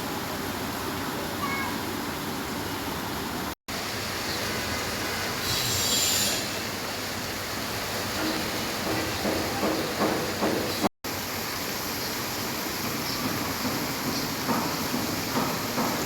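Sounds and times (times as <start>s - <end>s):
steady rain hiss: 0.0s - 16.0s
higher-pitched hiss: 4.2s - 7.2s.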